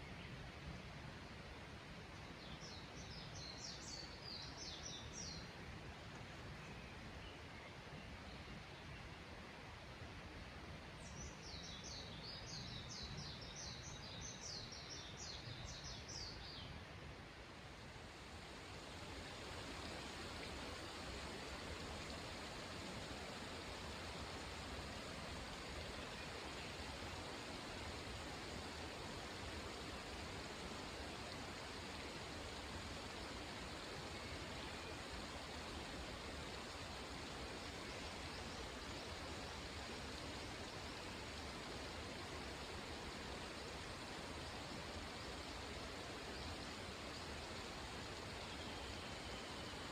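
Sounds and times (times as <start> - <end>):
water rushing: 17.1 - 49.9.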